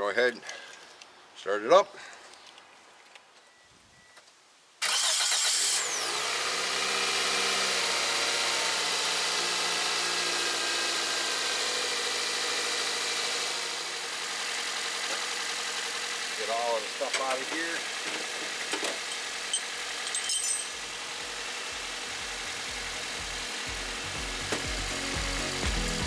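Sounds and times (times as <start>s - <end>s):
starter motor cranking: 4.8s - 25.0s
car engine idling: 6.2s - 26.0s.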